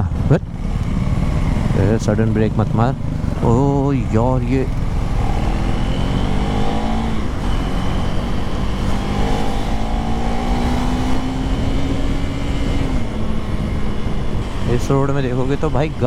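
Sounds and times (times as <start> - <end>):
motorcycle engine accelerating: 0.0 - 16.0
wind noise rumbling: 2.5 - 16.0.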